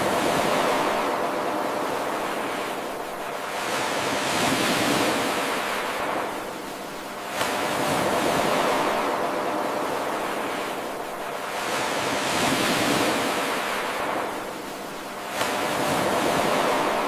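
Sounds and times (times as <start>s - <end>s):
ocean surf washing: 0.0s - 17.0s.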